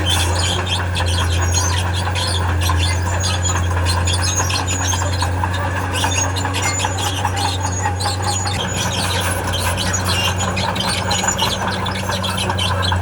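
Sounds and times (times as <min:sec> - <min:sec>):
diesel engine running: 0:00.0 - 0:13.0
steel tracks squealing and clattering: 0:00.0 - 0:13.0.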